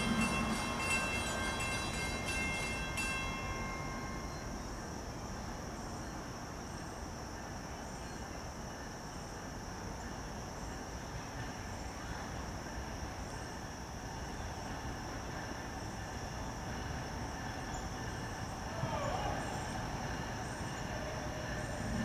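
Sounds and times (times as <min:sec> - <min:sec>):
train wheels clicking: 0:00.0 - 0:04.4
train ringing tones: 0:00.0 - 0:06.2, 0:17.8 - 0:22.0.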